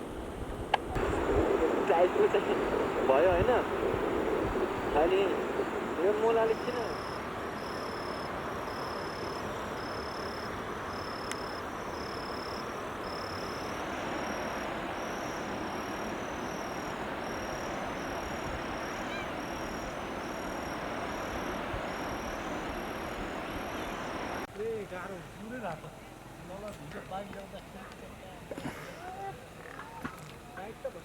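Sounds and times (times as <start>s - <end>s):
steady rushing noise: 0.0s - 24.5s.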